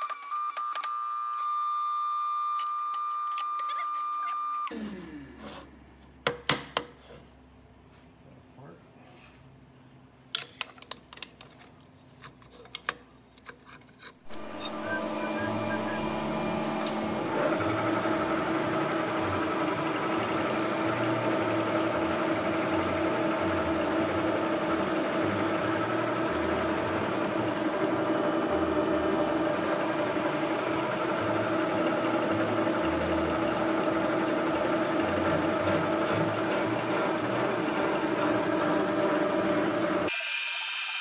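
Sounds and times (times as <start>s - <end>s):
machine tool motor hum: 14.2s - 40.4s.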